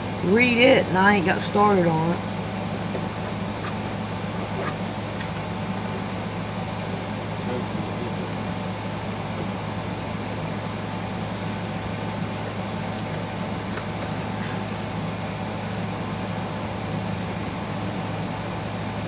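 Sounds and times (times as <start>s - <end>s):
mechanical hum with hiss: 0.0s - 19.0s.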